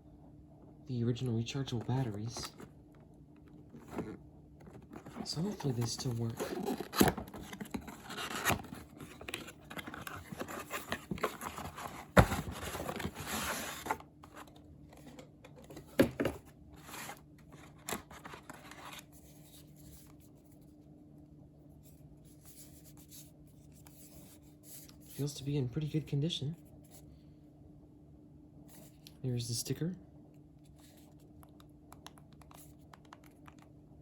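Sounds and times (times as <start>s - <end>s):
cardboard box rustling and tearing: 4.8s - 14.0s.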